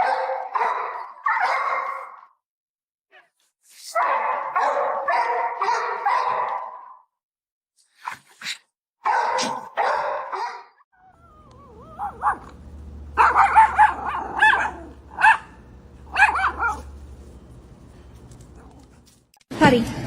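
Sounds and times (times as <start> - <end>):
dog barking: 0.0 - 2.4, 3.9 - 7.1, 9.0 - 17.0.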